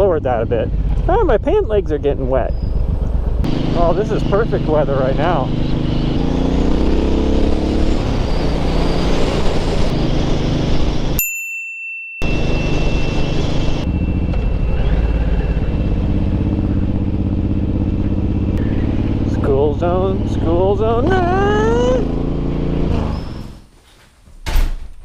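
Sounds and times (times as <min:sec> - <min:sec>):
motorcycle engine cruising: 0:02.2 - 0:11.2, 0:12.2 - 0:23.7
thin high steady tone: 0:11.2 - 0:17.5.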